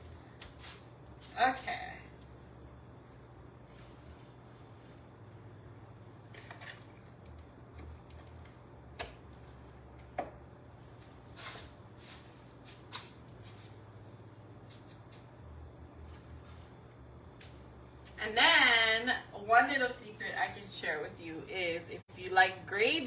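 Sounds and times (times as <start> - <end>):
low electrical hum: 0.0 - 23.0
soft rustles: 10.8 - 15.4.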